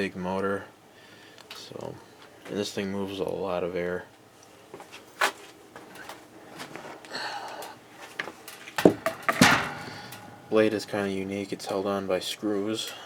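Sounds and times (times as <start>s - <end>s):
handling clicks and rustling: 8.0s - 11.0s
clatter of knocks: 8.8s - 10.4s.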